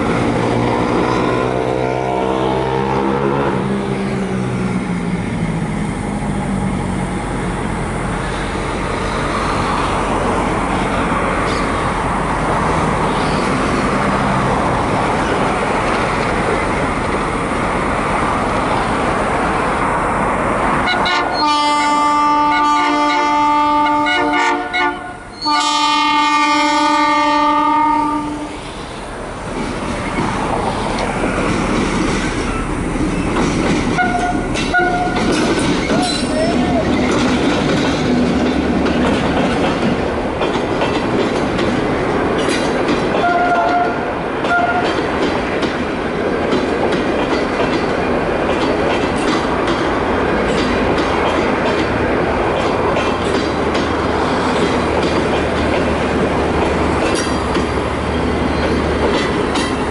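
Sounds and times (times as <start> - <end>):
train wheels clattering over rail joints: 28.6 - 59.9.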